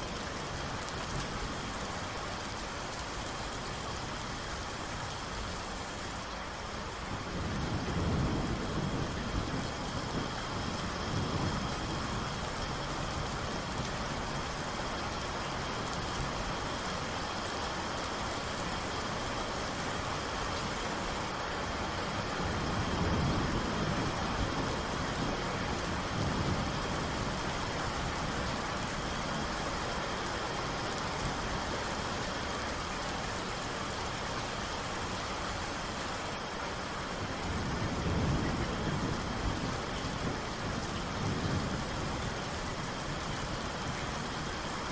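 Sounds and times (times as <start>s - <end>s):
steady rain: 0.0s - 44.9s
low thunder rolls: 7.2s - 13.9s, 37.4s - 43.6s.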